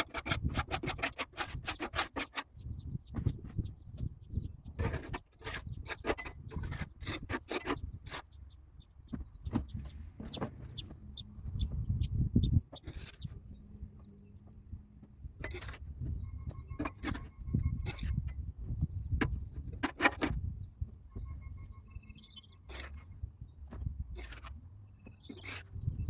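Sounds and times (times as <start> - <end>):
scraping and rubbing on metal: 0.0 - 3.7, 4.6 - 8.4, 12.7 - 13.6, 15.4 - 20.7, 22.2 - 23.2, 23.8 - 26.0
faint short squeaks: 15.4 - 18.4, 24.2 - 26.0.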